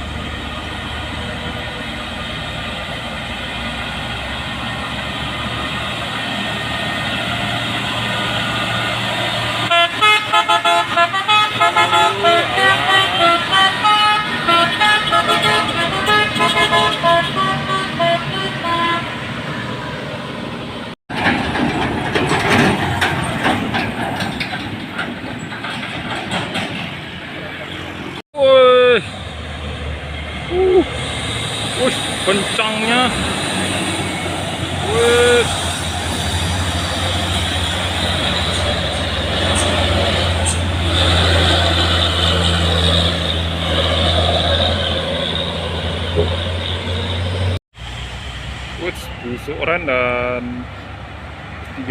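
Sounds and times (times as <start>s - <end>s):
heavy truck driving past: 0.0s - 28.2s, 28.9s - 51.9s
rattling clatter of truck body: 21.1s - 27.2s.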